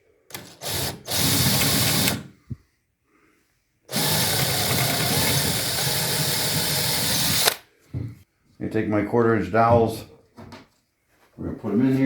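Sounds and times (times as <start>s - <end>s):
power drill boring into wood: 0.3s - 2.3s, 3.9s - 7.6s.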